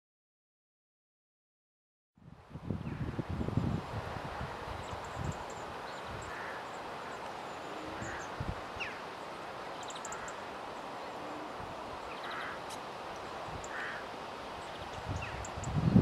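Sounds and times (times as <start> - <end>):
wind rumble on microphone: 2.2 - 6.5, 7.7 - 8.9, 14.7 - 16.0
outdoor hiss: 2.4 - 16.0
wild birds calling: 4.5 - 16.0.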